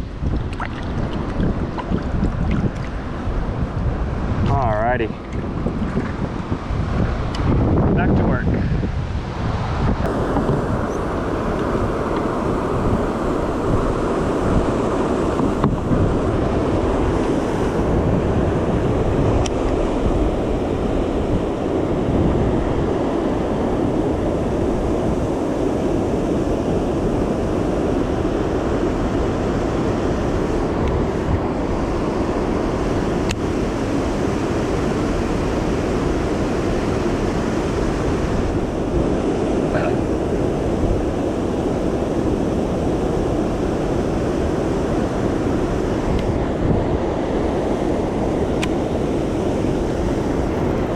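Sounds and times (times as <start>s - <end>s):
wind buffeting microphone: 0.0s - 50.9s
river water rushing over dam: 10.1s - 50.9s.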